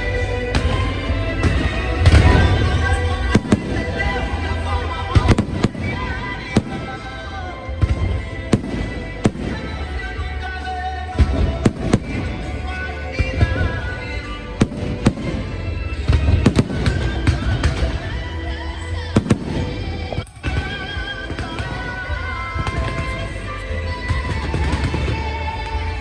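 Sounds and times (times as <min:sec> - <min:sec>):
music playing: 0:00.0 - 0:26.0
fireworks bangs: 0:00.5 - 0:25.9.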